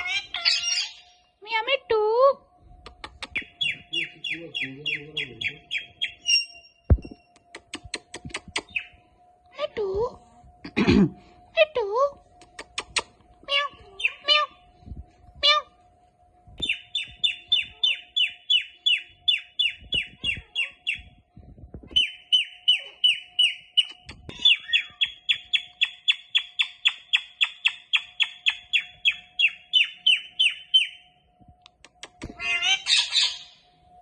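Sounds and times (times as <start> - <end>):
parrot shrill calls: 0.0 - 1.2, 13.5 - 14.6, 22.0 - 31.0, 32.4 - 33.6.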